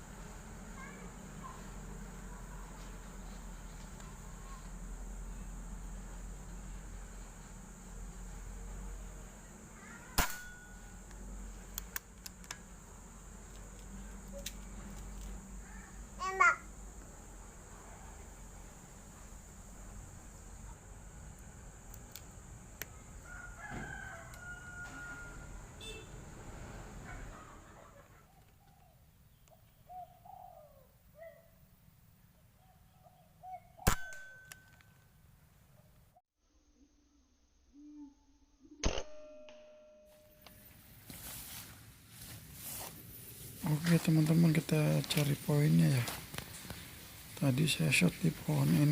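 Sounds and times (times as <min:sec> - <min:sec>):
air rifle shot: 0:10.2 - 0:10.7, 0:33.8 - 0:34.3
dove cooing: 0:29.7 - 0:31.4.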